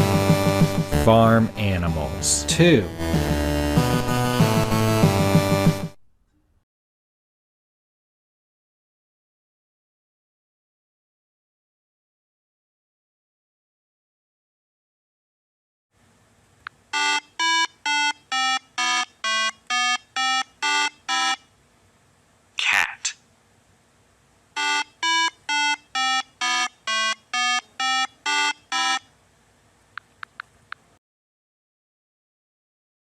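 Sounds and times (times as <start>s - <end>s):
person speaking: 0.9s - 3.0s, 22.6s - 23.2s
electronic beeping tune: 17.0s - 21.4s, 24.6s - 29.0s.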